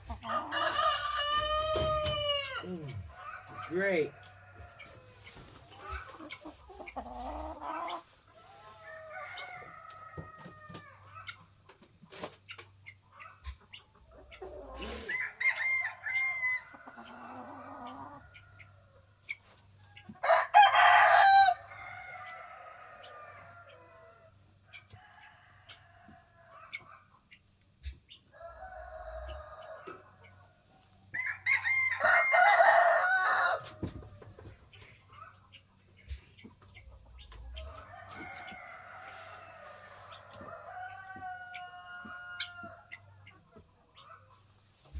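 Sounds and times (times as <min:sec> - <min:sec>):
roosters crowing: 0:00.0 - 0:11.3, 0:14.5 - 0:19.0, 0:19.7 - 0:26.6, 0:28.3 - 0:34.6, 0:37.2 - 0:43.2
chickens clucking: 0:00.0 - 0:44.9.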